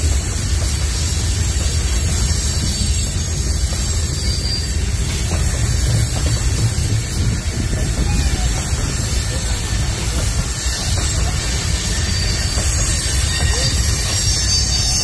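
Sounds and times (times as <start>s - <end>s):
freight train rumbling past: 0.0s - 15.0s
faint wheel squeals: 8.0s - 15.0s.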